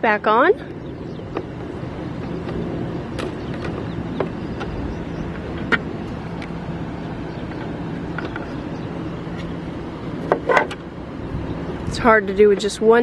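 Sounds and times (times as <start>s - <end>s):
air conditioner humming: 0.0s - 13.0s
sharp clicks and knocks: 3.2s - 6.6s, 7.4s - 8.6s.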